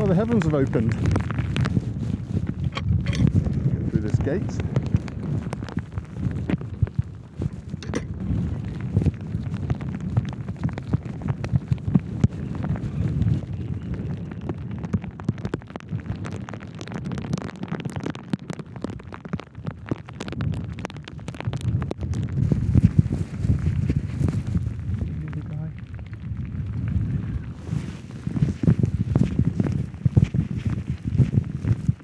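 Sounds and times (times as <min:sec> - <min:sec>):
wind buffeting microphone: 0:00.0 - 0:18.2, 0:18.8 - 0:32.0
raindrops hitting microphone: 0:00.0 - 0:32.0
heavy rain: 0:20.4 - 0:32.0.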